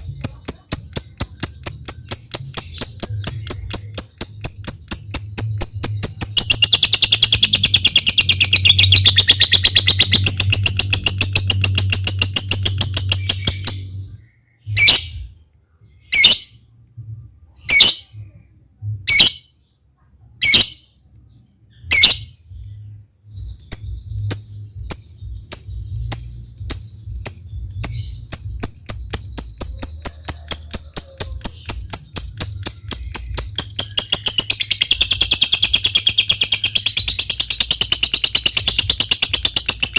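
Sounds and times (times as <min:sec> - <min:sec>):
bird ticking notes: 0:00.0 - 0:14.0, 0:23.4 - 0:39.9
bird trilling: 0:00.0 - 0:15.3, 0:23.6 - 0:39.9
sharp bird calls: 0:00.0 - 0:15.4, 0:23.4 - 0:39.9
low steady hum: 0:00.0 - 0:39.9.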